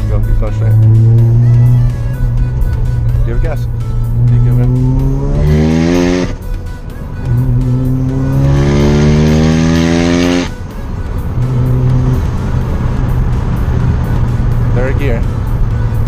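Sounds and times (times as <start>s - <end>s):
rotary engine revving: 0.4s - 6.4s, 7.2s - 10.6s, 11.3s - 14.6s.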